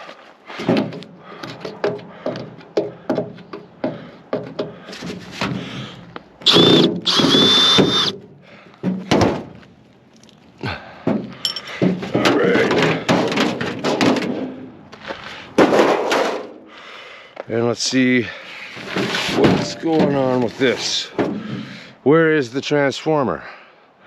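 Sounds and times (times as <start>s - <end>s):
power drill whirring: 6.4s - 8.2s
clicks and knocks of metal parts: 11.0s - 14.4s.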